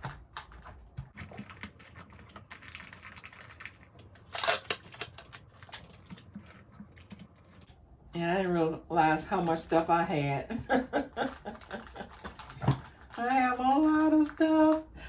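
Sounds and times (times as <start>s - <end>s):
plastic packaging crinkling: 0.0s - 7.7s, 11.0s - 14.8s.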